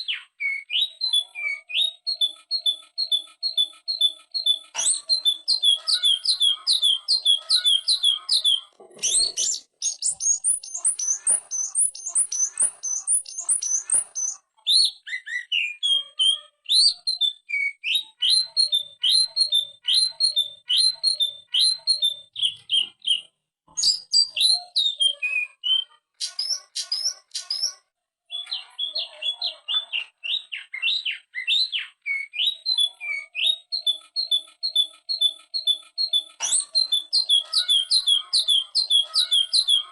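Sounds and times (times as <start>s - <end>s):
bird singing fast whistled notes: 0.0s - 39.9s.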